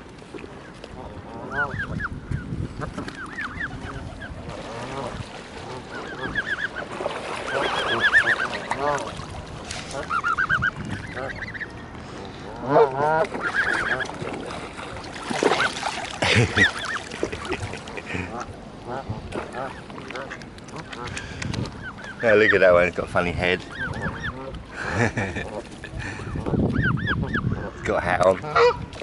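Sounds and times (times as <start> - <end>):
geese honking: 1.0 - 2.1, 2.8 - 14.2, 16.5 - 17.1, 23.6 - 24.6, 26.2 - 28.8.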